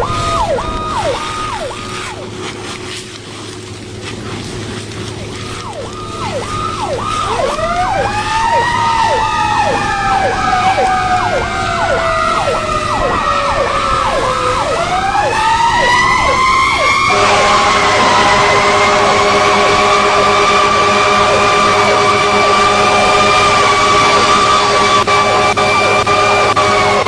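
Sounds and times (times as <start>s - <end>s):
fast falling siren: 0.0s - 2.8s, 5.0s - 27.0s
slow wailing siren: 0.0s - 27.0s
steady horn blast: 5.6s - 27.0s.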